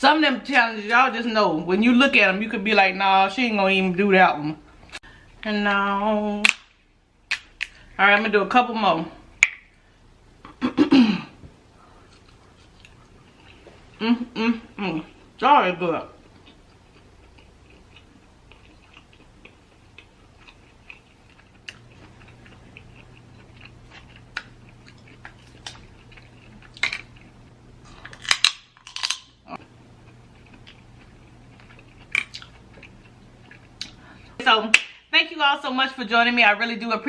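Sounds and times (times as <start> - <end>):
chewing crab legs: 11.9 - 14.0, 16.1 - 34.3
shell crackling: 28.1 - 29.4.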